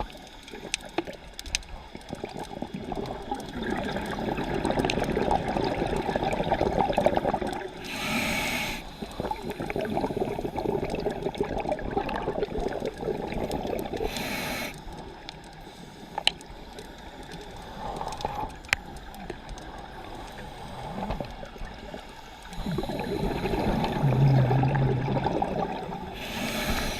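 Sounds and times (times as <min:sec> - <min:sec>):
exhaled bubbles bubbling underwater: 0:00.0 - 0:15.6, 0:16.2 - 0:26.9
regulator inhale hiss: 0:07.8 - 0:10.9, 0:14.0 - 0:19.0, 0:20.2 - 0:21.3, 0:22.2 - 0:24.4, 0:26.1 - 0:26.9.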